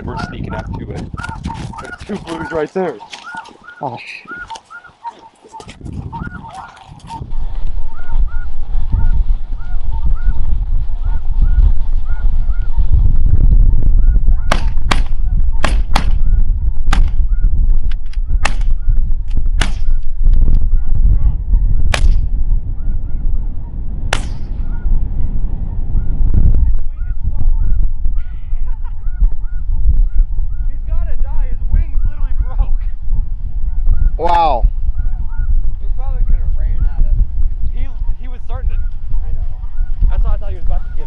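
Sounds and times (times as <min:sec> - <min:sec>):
geese calling: 0:00.0 - 0:13.0, 0:26.9 - 0:32.9, 0:33.7 - 0:35.8, 0:37.9 - 0:41.0
wind rumble on microphone: 0:00.0 - 0:41.0.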